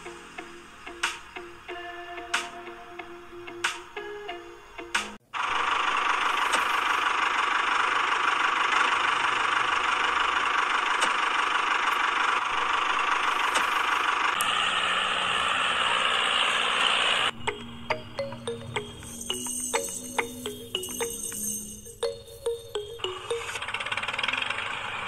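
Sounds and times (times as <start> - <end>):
small electric motor whirring: 5.4 - 17.4.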